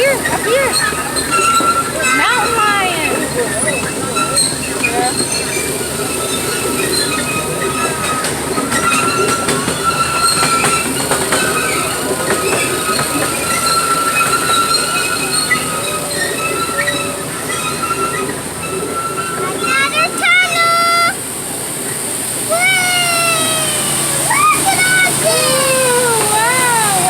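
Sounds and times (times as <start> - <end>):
train wheels squealing: 0.0 - 20.6
rail clicks: 0.0 - 27.0
train rumble: 0.0 - 27.0.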